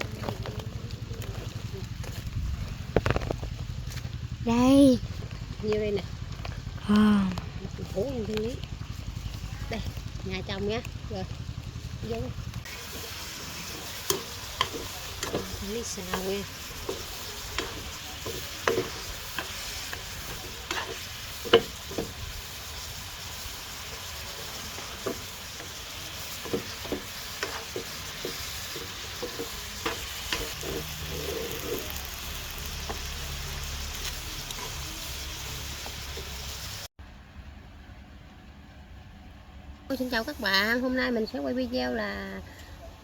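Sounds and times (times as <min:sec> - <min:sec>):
flowers sizzling in a pan: 0:00.0 - 0:36.9
spatula scraping a pan: 0:12.6 - 0:33.1.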